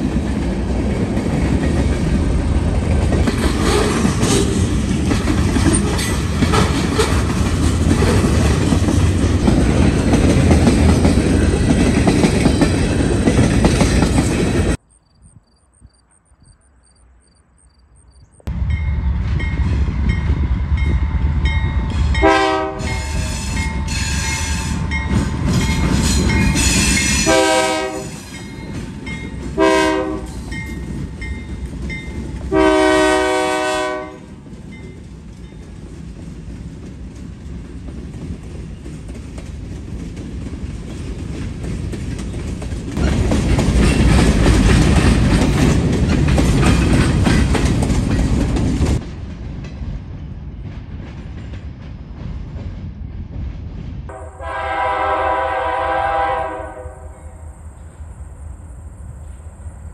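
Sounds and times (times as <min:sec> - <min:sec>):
diesel locomotives running: 0:00.0 - 0:14.8, 0:18.5 - 0:59.9
wheels clacking over rail joints: 0:00.0 - 0:14.8, 0:34.5 - 0:52.7
train air horn blasts: 0:21.8 - 0:24.9, 0:26.6 - 0:28.3, 0:29.6 - 0:30.4, 0:32.5 - 0:34.4, 0:54.1 - 0:57.5.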